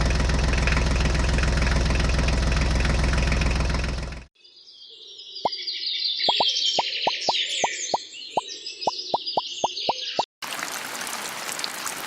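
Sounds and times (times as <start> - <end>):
engine idling: 0.0 - 4.3.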